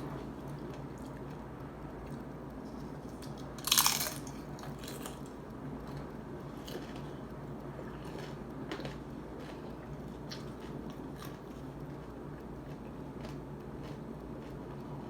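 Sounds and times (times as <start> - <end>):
crunching chews: 2.0 - 15.0
crunching bite into crisp shell: 3.2 - 5.3.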